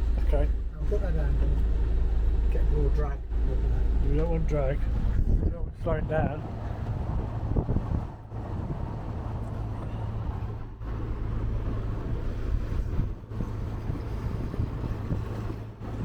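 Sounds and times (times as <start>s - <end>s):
boat engine droning: 0.0s - 16.0s
water noise: 0.0s - 16.0s
wind noise: 4.8s - 16.0s.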